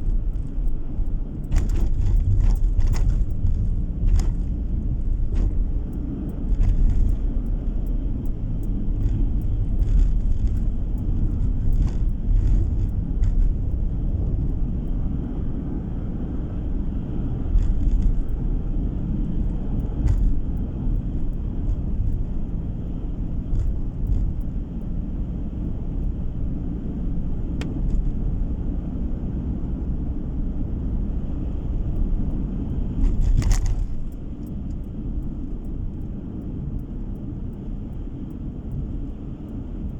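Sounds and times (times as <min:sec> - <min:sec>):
light clicks and knocks: 0:00.0 - 0:15.1, 0:19.2 - 0:25.0, 0:32.7 - 0:39.9
car road noise rumble: 0:00.0 - 0:39.9.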